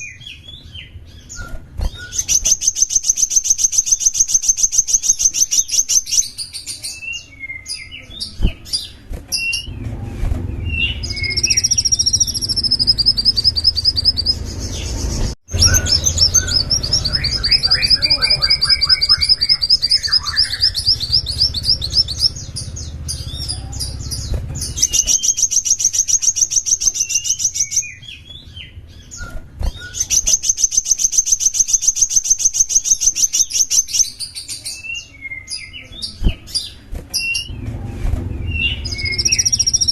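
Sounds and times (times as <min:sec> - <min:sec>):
songbird trills and chirps: 0:00.0 - 0:09.8, 0:10.6 - 0:37.6, 0:38.4 - 0:39.9
low rumble: 0:09.6 - 0:18.4, 0:37.5 - 0:39.9.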